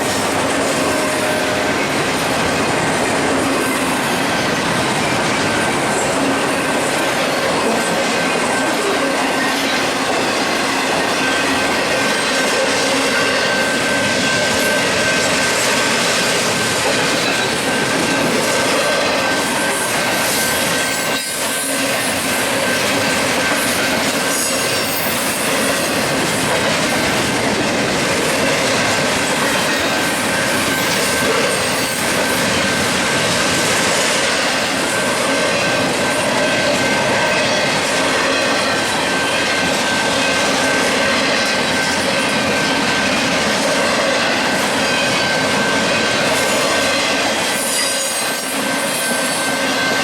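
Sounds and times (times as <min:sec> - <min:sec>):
freight train wheels rumbling: 0:00.0 - 0:50.0
high-pitched wheel squeal: 0:44.9 - 0:50.0.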